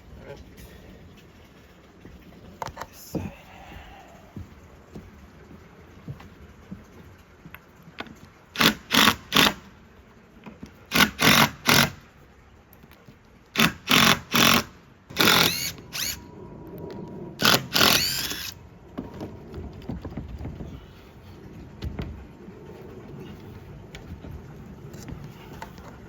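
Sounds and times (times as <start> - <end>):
power drill whirring: 10.9 - 11.9, 13.6 - 16.3, 17.4 - 18.6.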